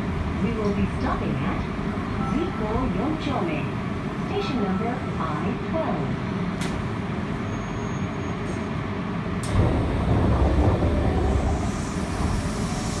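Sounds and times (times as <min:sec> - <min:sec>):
rumble of train wheels on track: 0:00.0 - 0:13.0.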